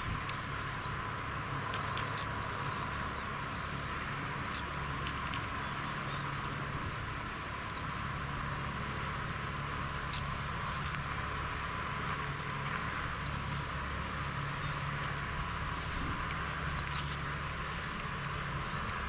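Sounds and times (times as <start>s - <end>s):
small bird chirping: 4.2s - 4.6s, 13.1s - 13.6s, 14.6s - 15.6s, 16.7s - 17.1s.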